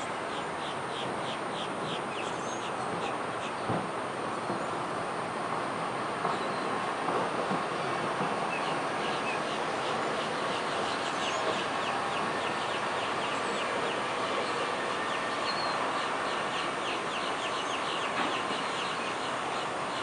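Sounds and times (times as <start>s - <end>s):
birds chirping: 8.4s - 20.0s.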